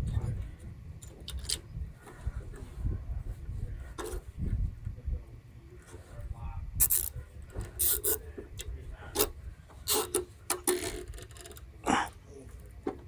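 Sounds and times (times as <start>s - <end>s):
clicks and rasping scrapes: 6.8s - 11.7s.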